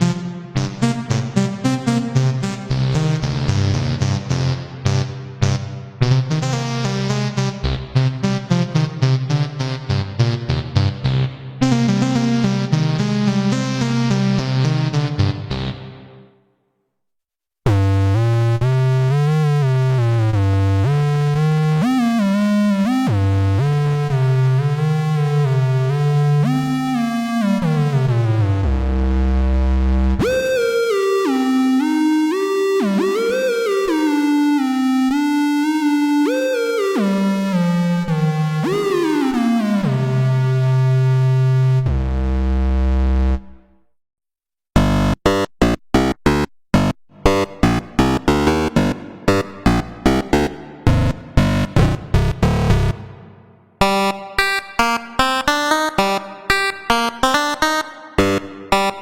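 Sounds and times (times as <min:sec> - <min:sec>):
synthesizer melody with pitch glides: 0:30.2 - 0:42.0, 0:44.8 - 0:59.0
synthesizer sliding sustained notes: 0:37.8 - 0:43.4.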